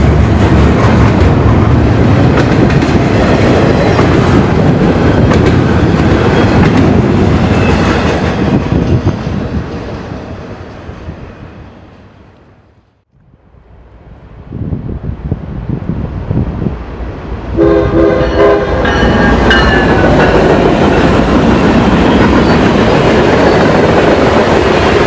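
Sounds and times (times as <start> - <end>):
train wheels clicking over rail joints: 0.0 - 9.0.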